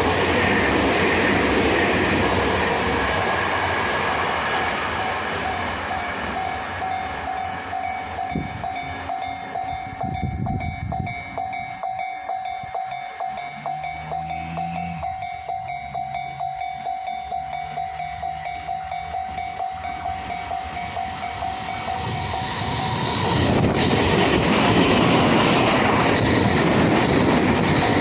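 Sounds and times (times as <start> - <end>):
train rumbling past: 0.0 - 28.0
crossing warning bell ringing: 4.9 - 23.6.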